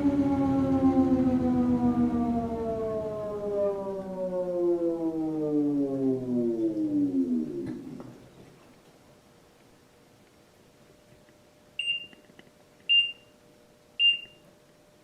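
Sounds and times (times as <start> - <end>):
washer motor and drum whine: 0.0 - 8.8.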